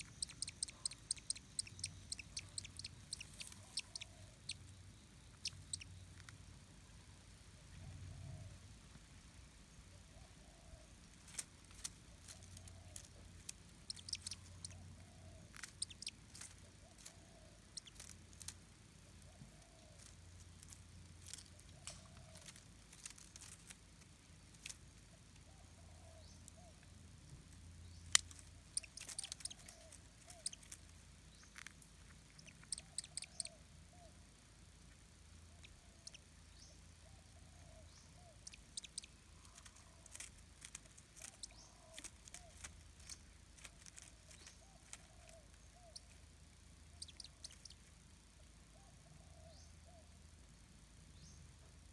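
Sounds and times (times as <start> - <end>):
sharp clicks and ticks: 0.0 - 4.0
distant bird calling: 0.0 - 4.7, 13.8 - 16.2, 37.6 - 40.0.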